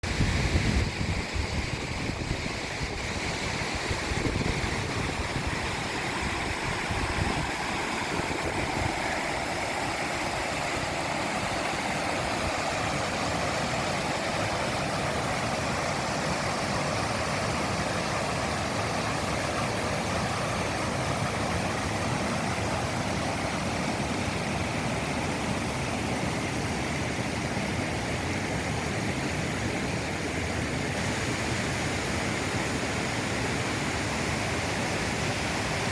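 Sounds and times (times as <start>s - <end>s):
running water rushing: 0.0s - 35.9s
wind buffeting microphone: 0.1s - 22.7s.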